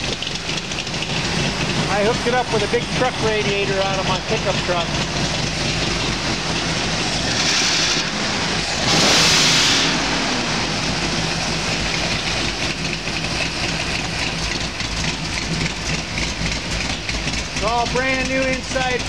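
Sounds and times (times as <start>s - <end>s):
muffled engine revving and idling: 0.0s - 19.0s.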